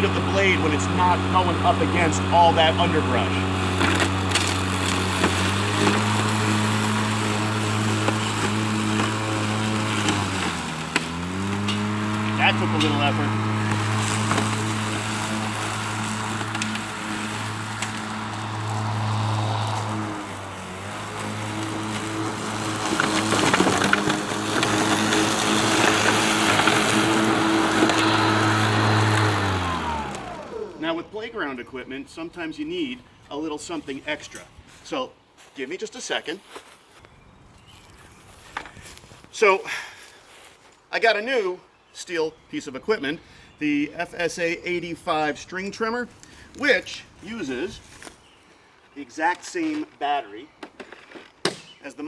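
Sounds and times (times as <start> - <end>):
electric lawn mower humming: 0.0 - 31.2
grass stems snapping: 3.7 - 6.1, 10.0 - 12.4, 13.7 - 18.1.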